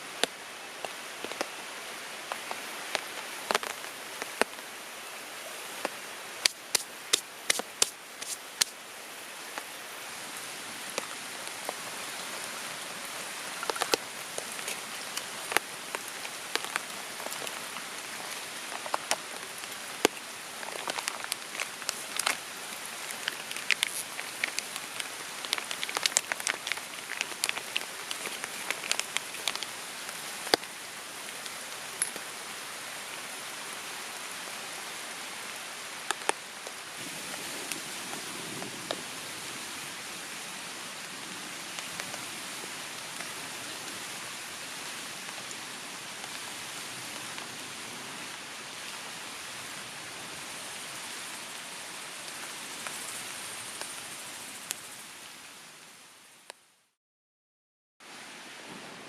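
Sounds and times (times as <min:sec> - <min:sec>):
rain hissing: 0:00.0 - 0:56.5
sharp raindrops striking close: 0:00.1 - 0:04.7, 0:05.7 - 0:09.7, 0:10.3 - 0:32.4.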